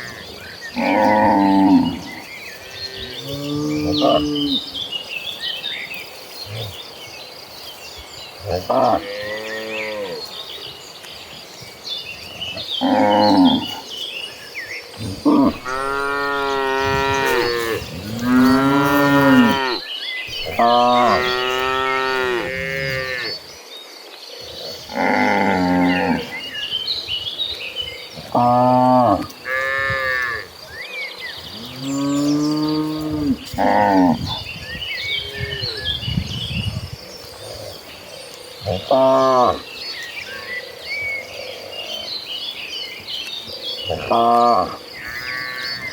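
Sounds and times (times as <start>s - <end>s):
cattle mooing: 15.0s - 23.4s.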